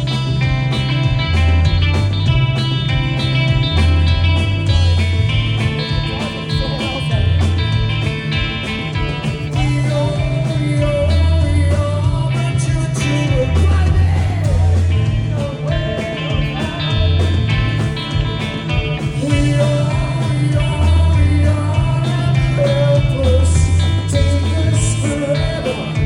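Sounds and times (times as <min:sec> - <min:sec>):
bass line: 0:00.0 - 0:26.0
drums: 0:00.0 - 0:26.0
electric guitars: 0:00.0 - 0:26.0
person singing: 0:09.5 - 0:17.6, 0:18.8 - 0:26.0.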